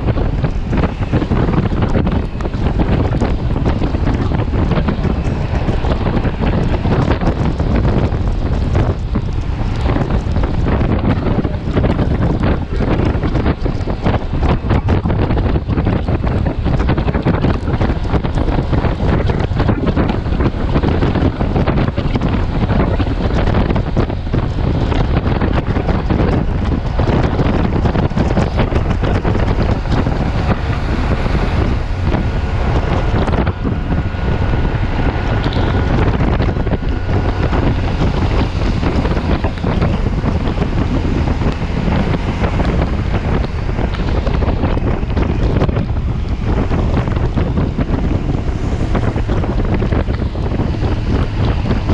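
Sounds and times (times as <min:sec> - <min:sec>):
wind buffeting microphone: 0:00.0 - 0:51.9.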